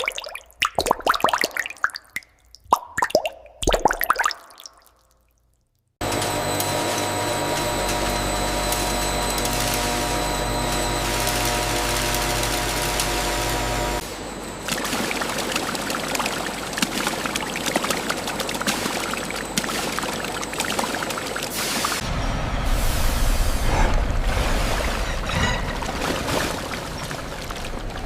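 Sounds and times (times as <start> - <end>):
machine humming: 6.0 - 21.2
rushing crackling liquid sound: 14.6 - 28.0.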